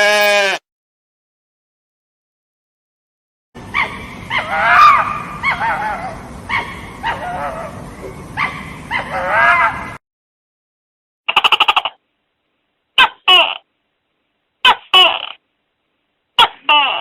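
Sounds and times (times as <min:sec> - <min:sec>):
animal yelping and whining: 0:03.7 - 0:07.8.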